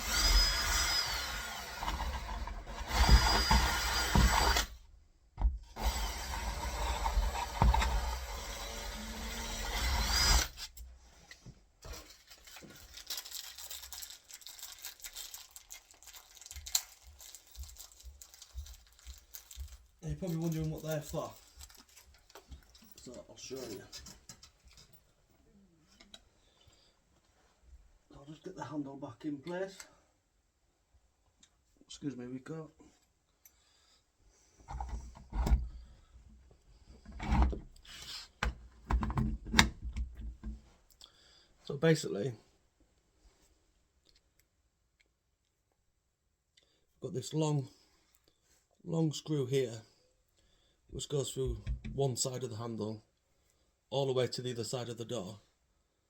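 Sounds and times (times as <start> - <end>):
power drill drilling into door: 0.0 - 4.8, 5.6 - 10.7.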